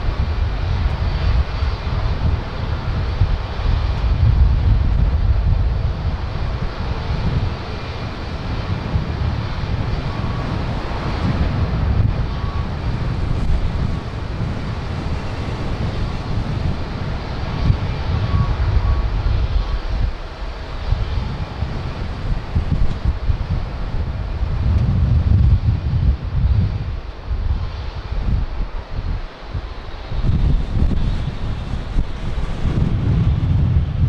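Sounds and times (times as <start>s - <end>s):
jet engine noise: 0.0s - 34.0s
wind buffeting microphone: 0.0s - 34.0s.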